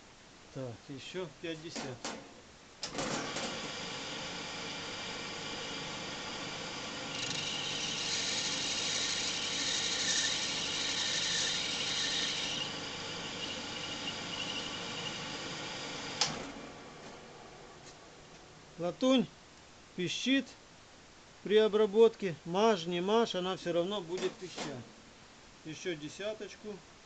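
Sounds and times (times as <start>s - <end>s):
lathe running: 3.0s - 17.4s
high-pitched cutting squeal: 7.1s - 15.6s.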